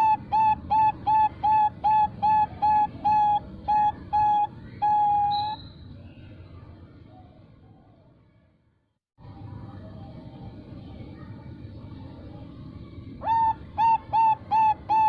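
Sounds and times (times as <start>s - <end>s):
dove cooing: 0.0s - 5.6s, 13.2s - 15.0s.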